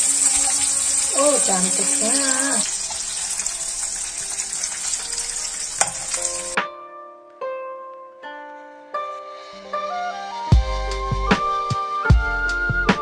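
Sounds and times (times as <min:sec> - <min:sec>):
sausages sizzling in pan: 0:00.0 - 0:06.6
instrumental music: 0:00.4 - 0:13.0.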